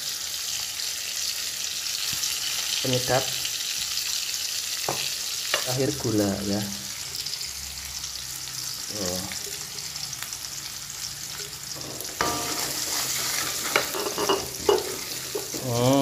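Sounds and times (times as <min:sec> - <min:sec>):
food sizzling in hot oil: 0:00.0 - 0:16.0
ladle knocking against wok: 0:11.8 - 0:12.8.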